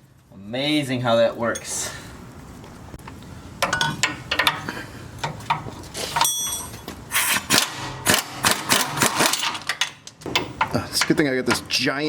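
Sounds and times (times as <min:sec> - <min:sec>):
metal tools clinking and knocking: 0:03.6 - 0:06.9.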